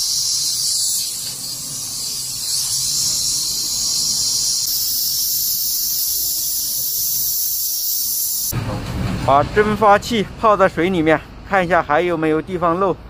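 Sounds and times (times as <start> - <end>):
high-pitched gas hiss: 0.0 - 8.5.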